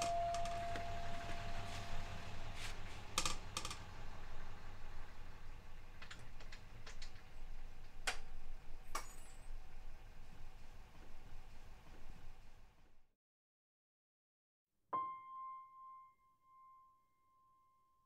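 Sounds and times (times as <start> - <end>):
ringing tone: 0.0 - 2.7
low steady hum: 0.0 - 12.8.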